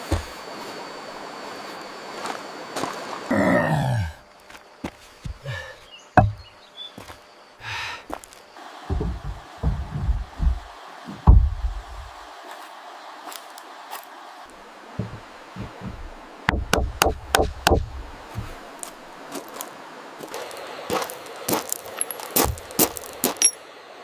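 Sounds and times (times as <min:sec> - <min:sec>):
wood knocks and thuds: 0:00.0 - 0:00.4, 0:05.2 - 0:05.6, 0:06.2 - 0:07.1, 0:08.9 - 0:12.1, 0:15.0 - 0:18.7
rain hiss: 0:00.0 - 0:04.8, 0:07.0 - 0:24.0.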